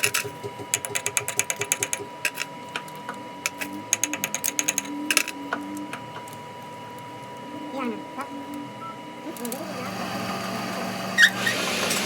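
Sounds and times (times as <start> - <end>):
rapid metallic clicking: 0.0 - 6.0
steady high whine: 0.0 - 11.2.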